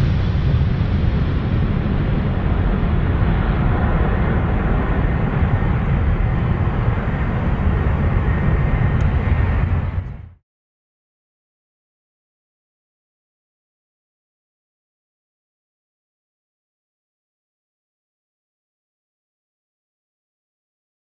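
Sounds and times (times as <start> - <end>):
jet engines rumbling: 0.0 - 10.4.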